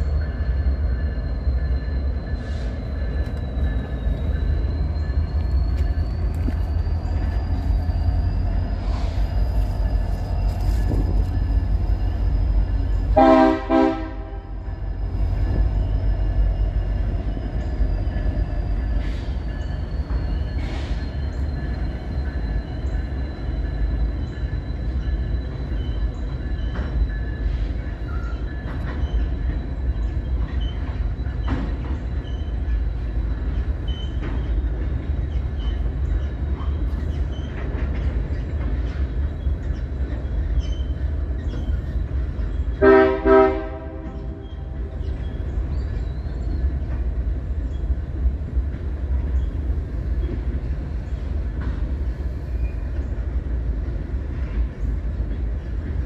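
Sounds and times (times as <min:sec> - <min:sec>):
wheel squeal: 0:00.0 - 0:13.2, 0:14.6 - 0:42.8
train rumbling over bridge: 0:00.0 - 0:56.0
train horn blasts: 0:13.1 - 0:14.7, 0:42.8 - 0:44.9.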